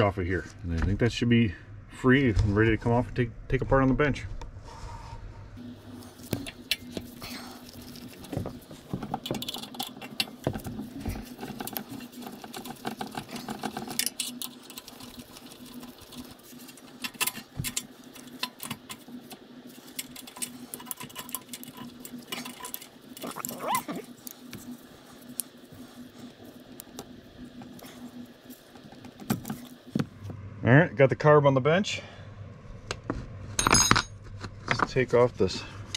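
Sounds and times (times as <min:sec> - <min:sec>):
steady low hum: 0:00.0 - 0:35.9
metal parts clicking and clinking: 0:06.2 - 0:25.7, 0:33.6 - 0:34.9.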